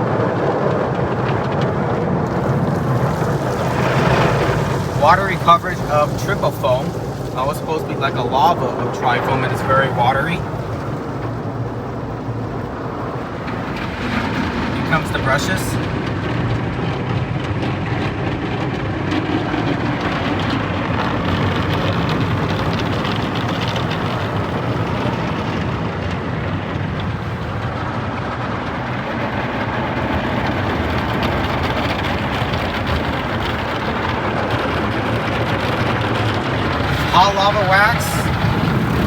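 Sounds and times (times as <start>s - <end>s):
car wash brushes scrubbing: 0.0s - 39.0s
water spray: 2.2s - 10.5s.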